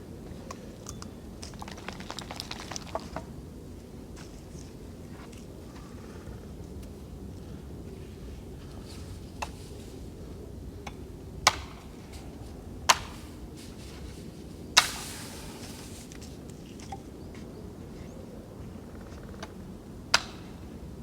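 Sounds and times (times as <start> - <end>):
short hiss: 14.8 - 16.1.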